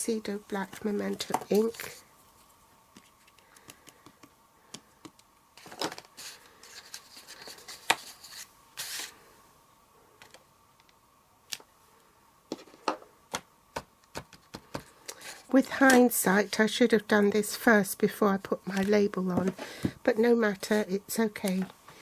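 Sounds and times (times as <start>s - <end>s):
paper rustling: 5.6s - 9.2s.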